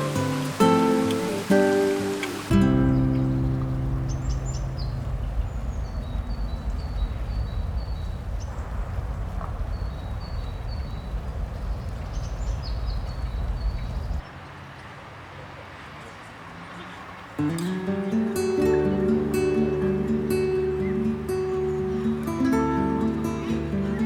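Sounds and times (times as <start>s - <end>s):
guitar note: 0.0s - 5.4s, 17.5s - 24.0s
low rumble of park ambience: 0.0s - 24.0s
songbirds chirping: 0.0s - 24.0s.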